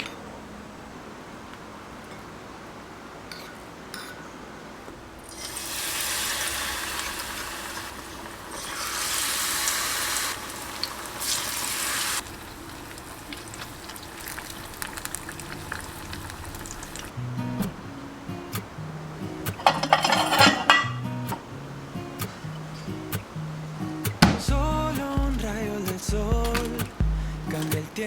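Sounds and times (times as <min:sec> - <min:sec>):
water running from a tap: 0:05.3 - 0:17.1.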